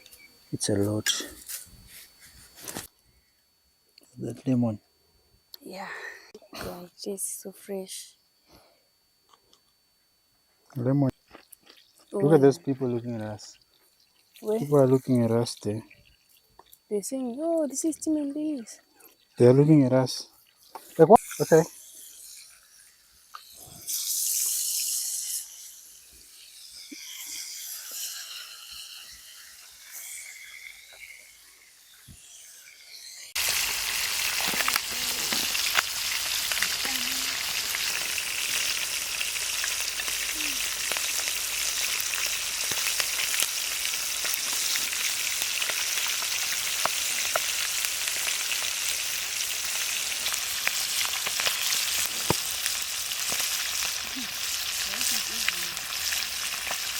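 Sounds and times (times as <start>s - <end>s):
fish sizzling with crackle: 11.5s - 18.6s, 19.3s - 56.9s.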